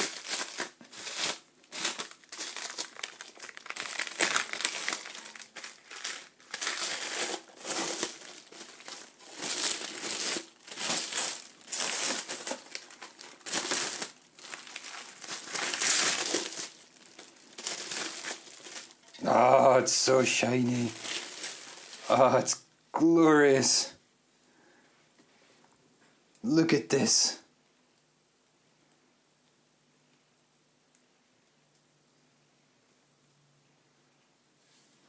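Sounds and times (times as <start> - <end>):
wrapping crinkling and rustling: 0.0 - 22.6.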